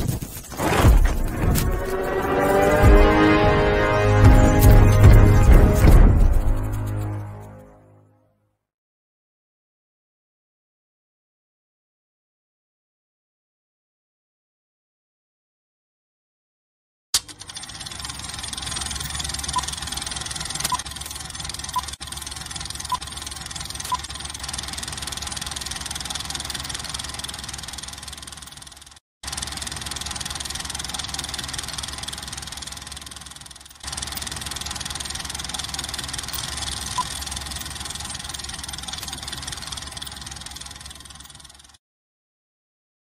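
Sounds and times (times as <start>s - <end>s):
film projector running: 17.2s - 41.8s.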